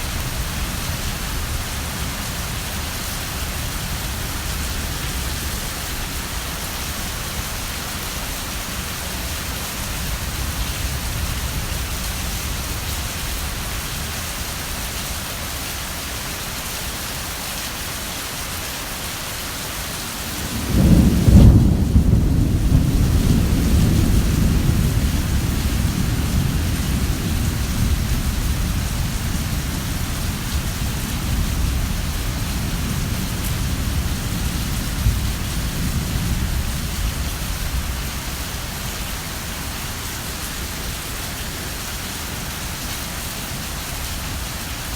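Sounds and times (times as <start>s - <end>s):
heavy rain falling: 0.0s - 44.9s
low thunder rumble: 20.3s - 39.8s.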